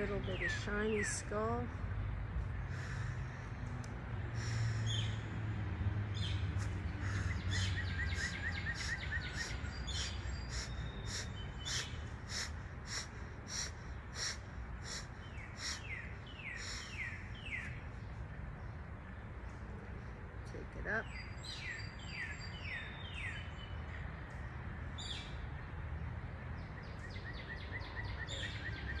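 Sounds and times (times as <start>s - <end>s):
bird trill: 7.0s - 17.8s.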